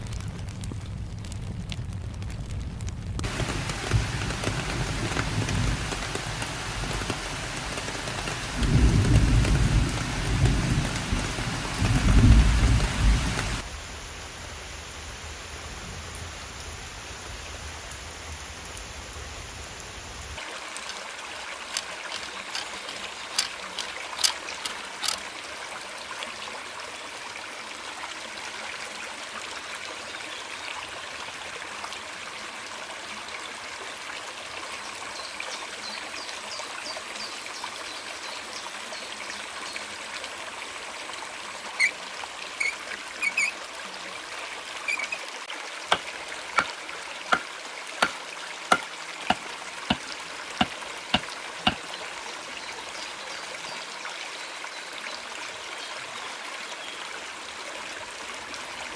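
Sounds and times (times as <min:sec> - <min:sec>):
water running and trickling: 0:03.2 - 0:58.9
sharp taps: 0:45.9 - 0:50.0.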